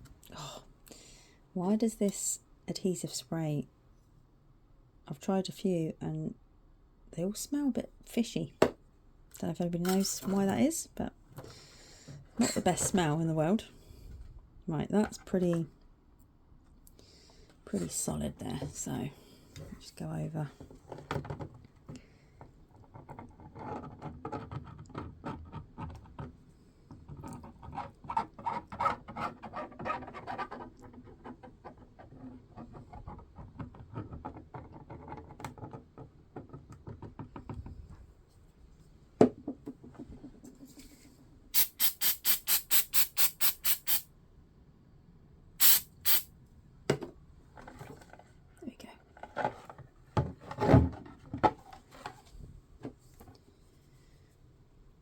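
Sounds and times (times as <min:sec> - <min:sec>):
plastic parts scraping and clicking: 0:22.8 - 0:37.6
adhesive spray hisses: 0:41.6 - 0:44.1, 0:45.6 - 0:46.3.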